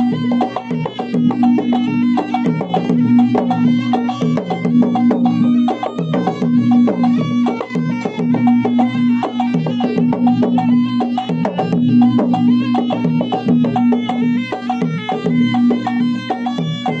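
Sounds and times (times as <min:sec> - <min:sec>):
drums beaten in fast rhythm: 0:00.0 - 0:17.0.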